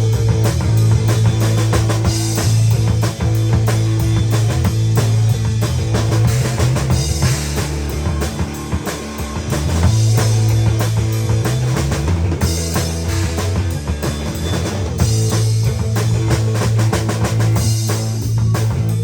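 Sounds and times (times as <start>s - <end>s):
bass line: 0.0s - 19.0s
drum kit beat: 0.0s - 19.0s
electric guitar: 0.0s - 19.0s.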